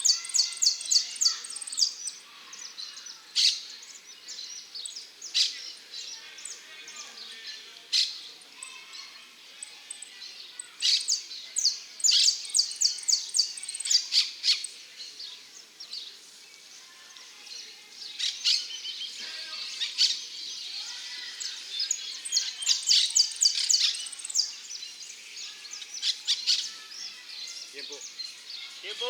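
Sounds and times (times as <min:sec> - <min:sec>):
finch singing high chirps: 0:00.0 - 0:02.2, 0:09.9 - 0:14.7, 0:19.8 - 0:25.2.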